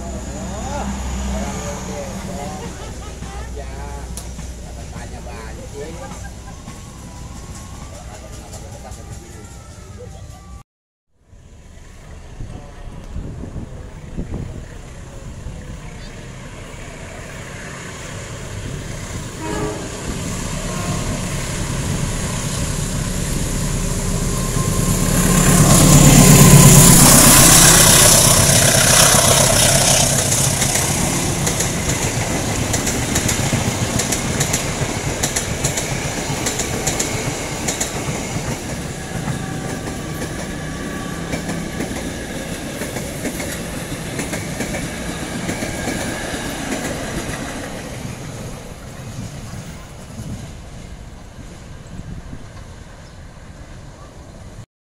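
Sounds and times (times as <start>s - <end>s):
diesel locomotive passing: 0.0s - 10.6s, 11.2s - 54.6s
train wheels clickety-clack: 2.2s - 9.8s, 25.8s - 50.6s.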